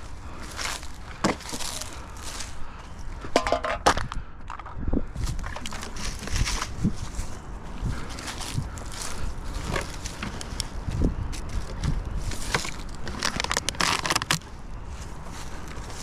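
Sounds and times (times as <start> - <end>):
brush and plastic crackling: 5.2 - 16.0.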